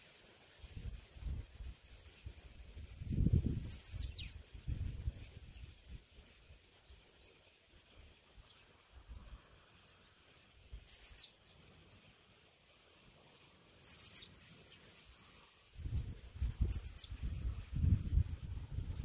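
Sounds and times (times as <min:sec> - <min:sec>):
bird calling: 0:10.8 - 0:11.3, 0:13.8 - 0:14.3.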